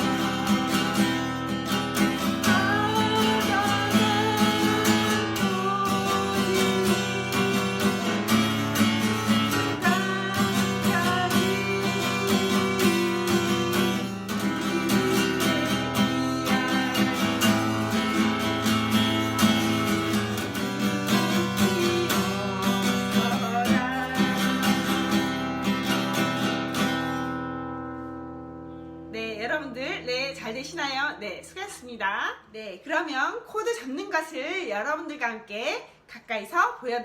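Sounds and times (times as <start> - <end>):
person singing: 0.0 - 27.4
acoustic guitar strumming: 0.0 - 31.8.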